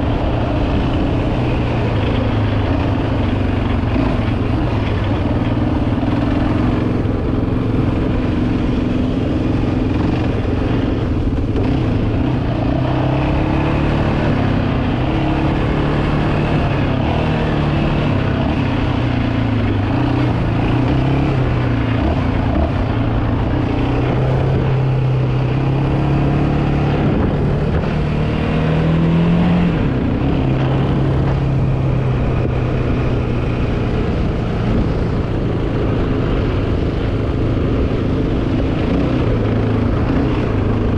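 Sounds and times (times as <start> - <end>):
atv engine revving: 0.0 - 40.9.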